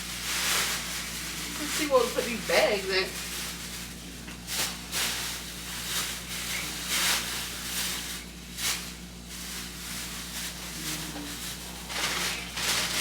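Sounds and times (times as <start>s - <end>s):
plastic bags rustling: 0.0s - 13.0s.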